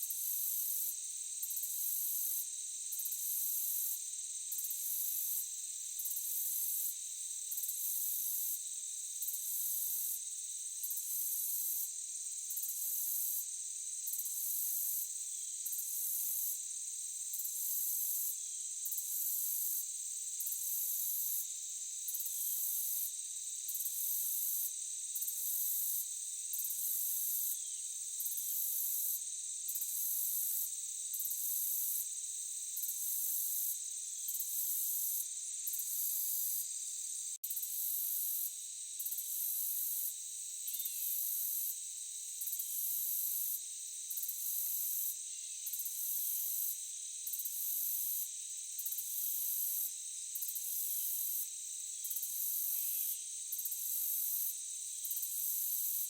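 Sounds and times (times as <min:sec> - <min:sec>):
crickets droning: 0:00.1 - 0:49.0
pulsing insect trill: 0:23.6 - 0:56.0.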